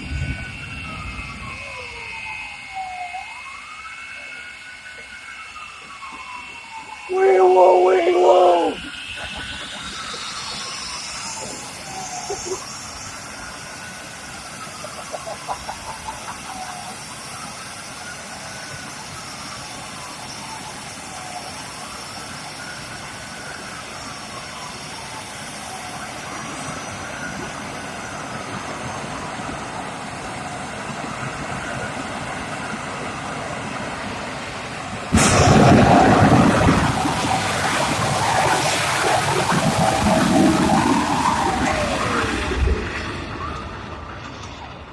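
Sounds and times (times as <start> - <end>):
wailing siren: 0.0 - 44.9
sudden rush of noise: 7.1 - 17.0, 35.1 - 44.9.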